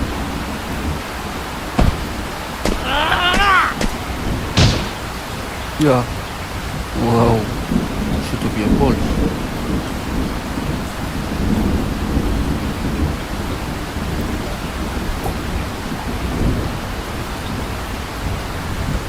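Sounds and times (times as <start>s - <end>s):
heavy rain: 0.0s - 19.0s
low thunder rumble: 3.8s - 19.0s.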